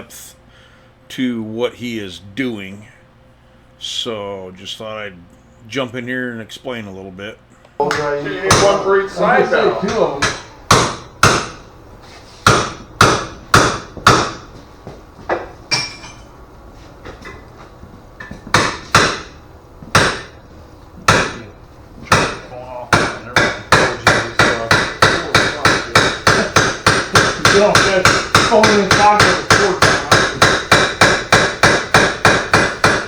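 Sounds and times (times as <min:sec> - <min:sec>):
hammer striking sheet metal: 0:07.9 - 0:11.7, 0:12.4 - 0:14.5, 0:18.2 - 0:20.4, 0:21.0 - 0:21.5, 0:22.1 - 0:33.0.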